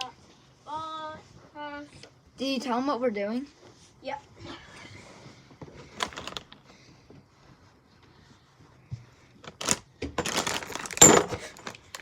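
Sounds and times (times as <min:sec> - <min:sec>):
rustling and knocking handling noise: 0:05.2 - 0:12.0.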